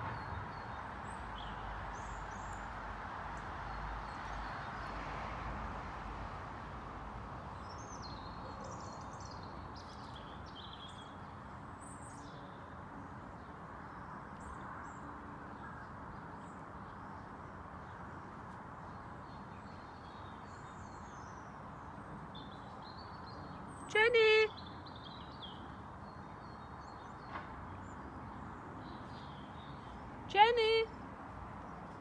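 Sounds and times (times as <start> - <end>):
small birds chirping: 7.6 - 12.5.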